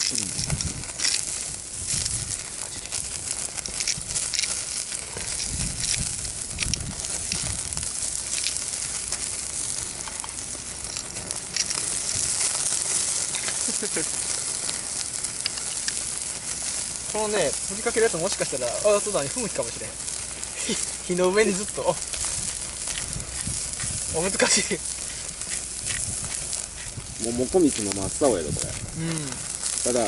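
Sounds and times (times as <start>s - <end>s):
meat sizzling on a grill: 0.0s - 30.0s
wood fire crackling: 0.0s - 30.0s.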